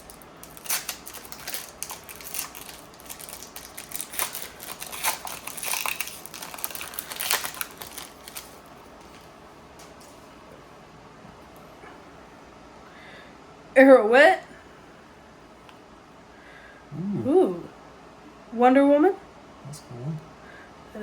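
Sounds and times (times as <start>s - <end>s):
foil wrapper crinkling: 0.0s - 10.1s.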